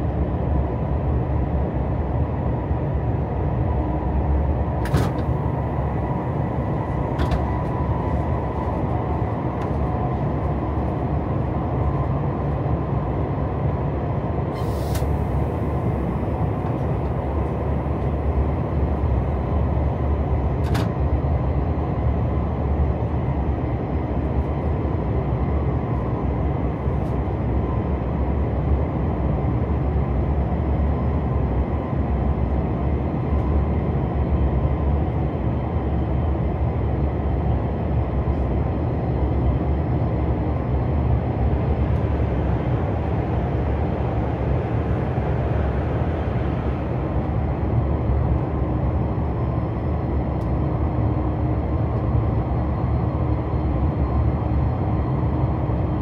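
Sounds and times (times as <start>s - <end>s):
train cabin rumble: 4.5s - 12.4s.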